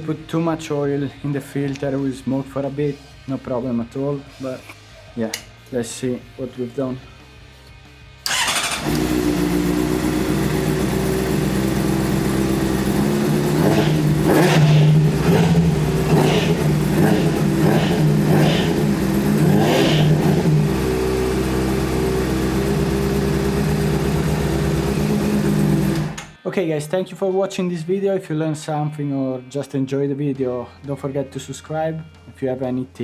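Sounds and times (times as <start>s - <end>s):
motorcycle engine idling and revving: 8.2s - 26.4s.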